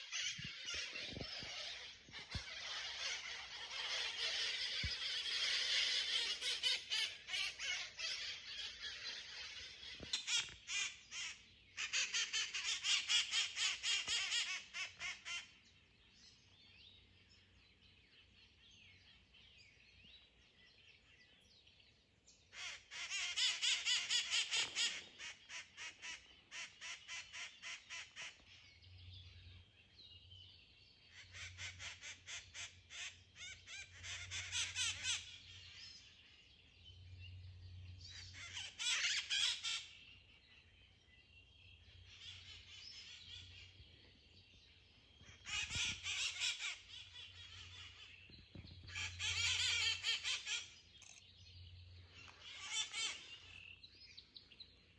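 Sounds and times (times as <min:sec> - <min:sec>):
parrots screeching and chattering: 0:00.0 - 0:15.4, 0:31.3 - 0:35.4, 0:38.3 - 0:40.0, 0:45.4 - 0:48.0, 0:48.9 - 0:51.2, 0:52.4 - 0:53.3.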